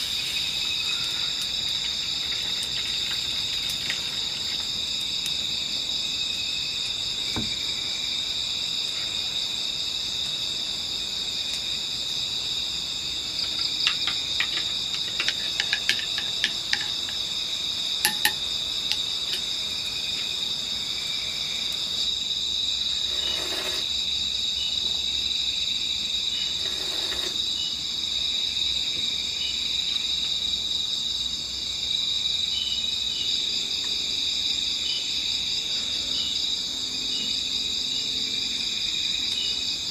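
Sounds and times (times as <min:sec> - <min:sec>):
crickets and insects shrilling: 0:00.0 - 0:39.9
small sharp clicks and clinks: 0:13.5 - 0:17.3, 0:18.0 - 0:19.5.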